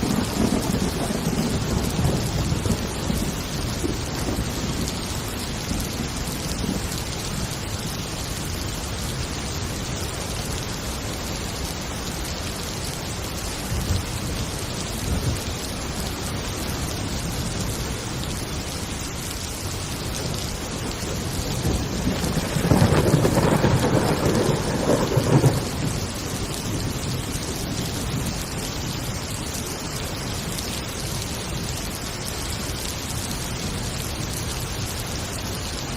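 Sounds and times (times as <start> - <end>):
rolling thunder: 0.0 - 7.0, 20.2 - 28.6
heavy rain: 0.0 - 35.9.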